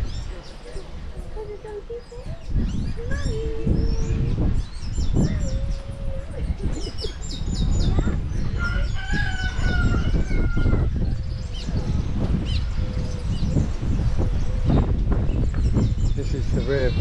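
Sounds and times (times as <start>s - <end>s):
small birds chirping: 0.0s - 17.0s
rooster crowing: 8.6s - 11.0s.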